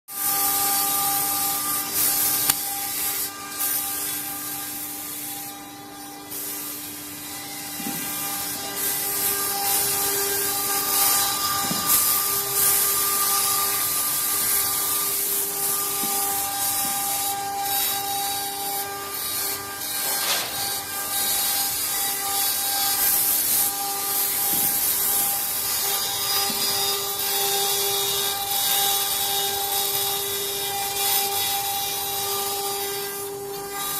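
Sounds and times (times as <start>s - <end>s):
engraving bit rasping wood: 0.1s - 33.9s.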